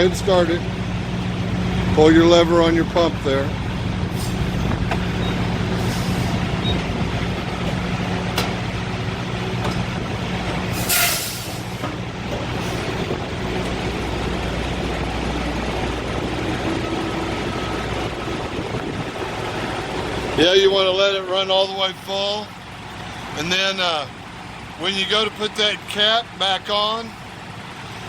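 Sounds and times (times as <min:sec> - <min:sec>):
diesel truck engine idling: 0:00.0 - 0:28.0
air brake hiss: 0:05.8 - 0:06.4, 0:10.7 - 0:11.8.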